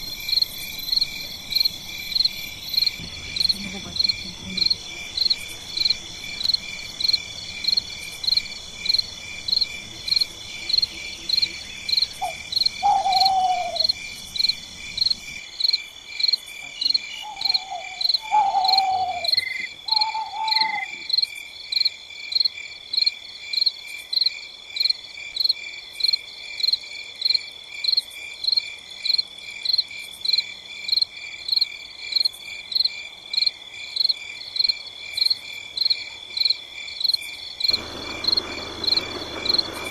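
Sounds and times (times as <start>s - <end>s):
crickets chirping: 0.0s - 39.9s
low background rumble: 37.7s - 39.9s.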